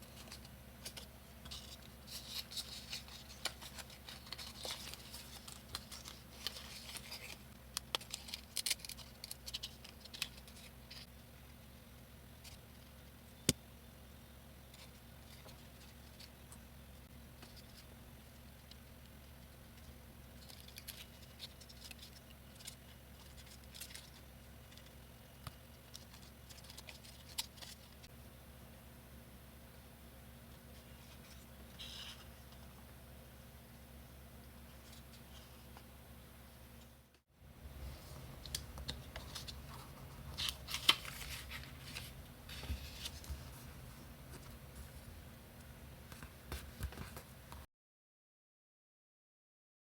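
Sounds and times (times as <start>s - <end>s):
paper rustling and clicks: 0.1s - 11.1s, 38.3s - 43.6s.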